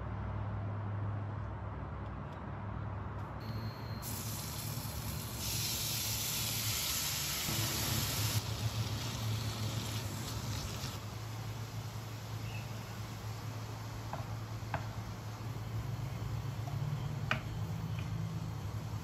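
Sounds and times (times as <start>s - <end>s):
food sizzling in hot oil: 4.0s - 13.6s.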